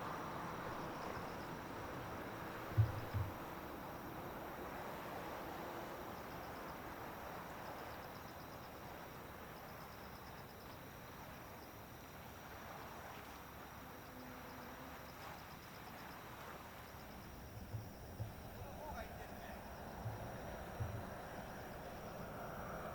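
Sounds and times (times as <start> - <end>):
distant jet rumble: 0.0 - 4.4, 17.0 - 22.9
insects chirping: 0.0 - 22.9.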